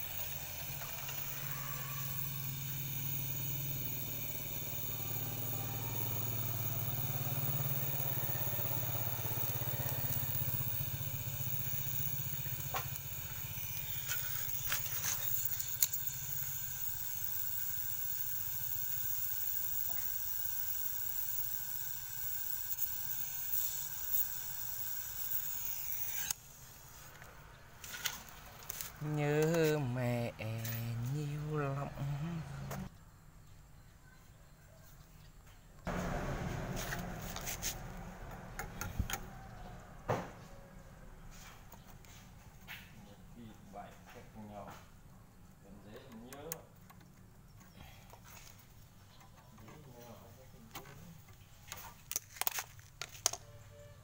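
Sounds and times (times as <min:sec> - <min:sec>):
machine hum with hiss: 0:00.0 - 0:32.9, 0:35.9 - 0:42.8.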